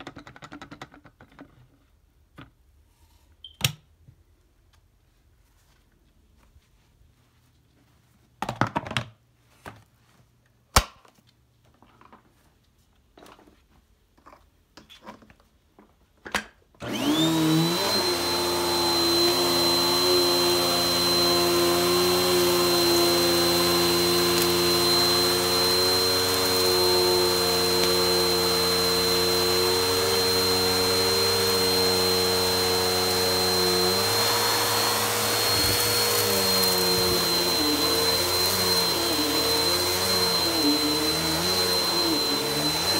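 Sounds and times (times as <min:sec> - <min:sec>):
scattered clicks and knocks: 0:00.0 - 0:01.6
vacuum cleaner motor whining: 0:16.8 - 0:42.9.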